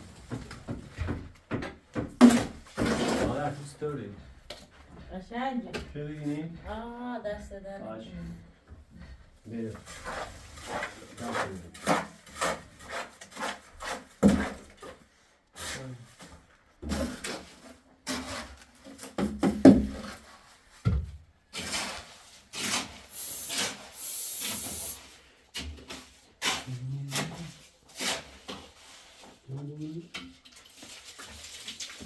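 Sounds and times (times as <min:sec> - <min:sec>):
rubbing or scraping strokes: 0:09.7 - 0:14.6, 0:21.6 - 0:29.6
steady hiss: 0:23.1 - 0:25.0.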